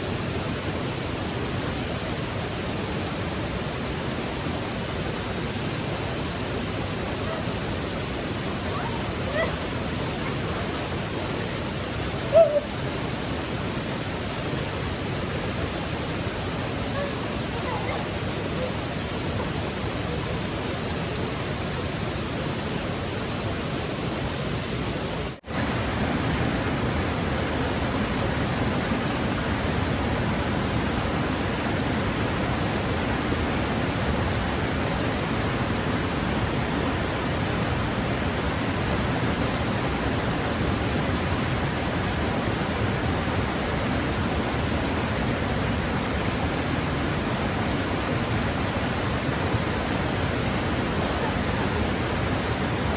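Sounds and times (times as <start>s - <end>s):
stream water rushing: 0.0s - 52.9s.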